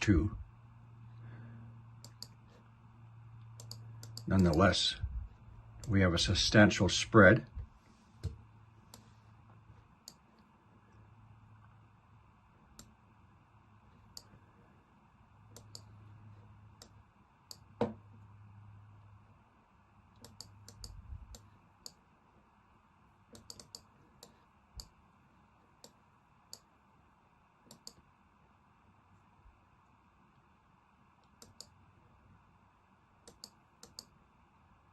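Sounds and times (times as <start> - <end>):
faint low hum: 0.0 - 34.9
computer mouse clicks: 2.0 - 2.6, 3.4 - 4.7, 10.0 - 10.5, 14.1 - 14.4, 15.5 - 16.0, 16.8 - 18.0, 20.1 - 22.0, 23.3 - 25.0, 25.8 - 26.7, 27.7 - 28.0, 31.2 - 31.8, 33.2 - 34.2.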